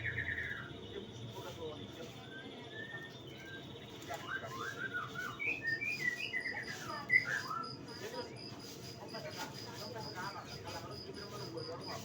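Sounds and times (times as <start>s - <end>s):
bird singing whistled notes: 0.0s - 0.7s, 2.2s - 8.2s.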